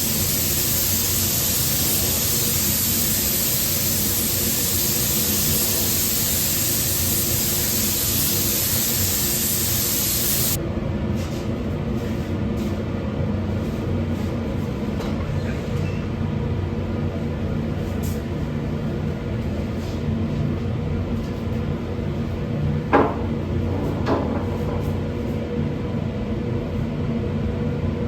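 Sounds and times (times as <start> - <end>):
spray gun hissing: 0.0 - 10.6
low machinery hum: 0.0 - 28.0.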